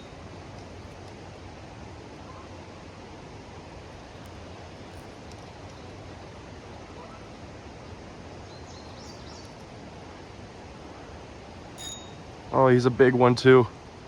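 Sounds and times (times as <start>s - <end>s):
faint high chirps: 11.8s - 12.3s.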